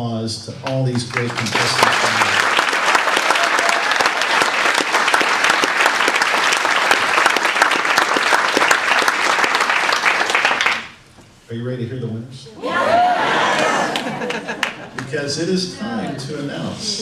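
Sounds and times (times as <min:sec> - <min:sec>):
audience applauding: 0:00.6 - 0:11.0, 0:12.6 - 0:15.2.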